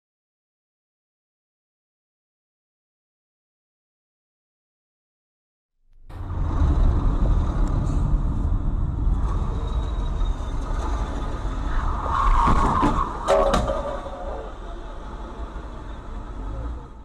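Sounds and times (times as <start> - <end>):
vehicle engine and road noise: 6.0 - 17.0.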